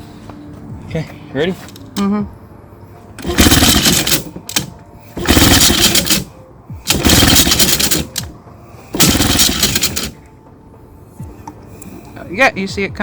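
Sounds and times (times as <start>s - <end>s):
outboard engine cranking: 3.2s - 6.3s, 6.9s - 8.3s, 9.0s - 10.2s.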